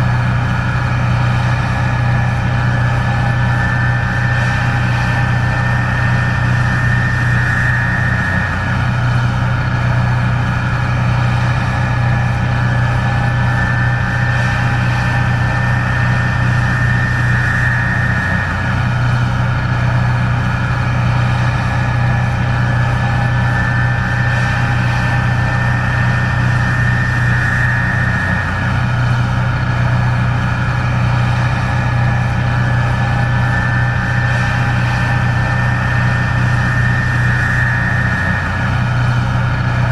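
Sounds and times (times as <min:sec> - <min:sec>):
combine engine drone: 0:00.0 - 0:39.9
high machine whine: 0:00.0 - 0:39.9.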